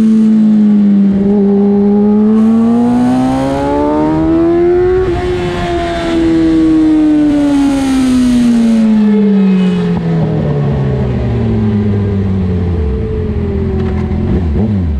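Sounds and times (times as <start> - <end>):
wind rush on microphone: 3.9 - 8.9.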